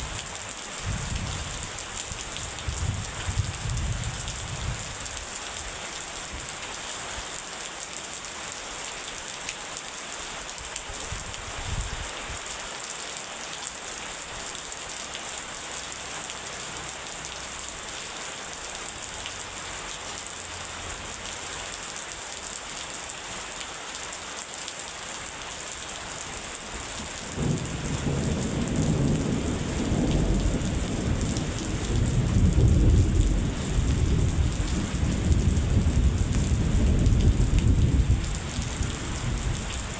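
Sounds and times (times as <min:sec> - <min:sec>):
rain hissing: 0:00.0 - 0:07.6, 0:15.0 - 0:39.9
rolling thunder: 0:27.3 - 0:39.9.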